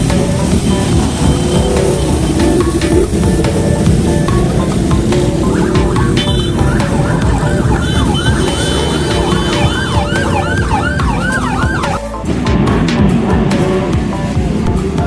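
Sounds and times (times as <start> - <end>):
dense low rumble: 0.0 - 8.5
siren wailing in fast sweeps: 0.0 - 12.0.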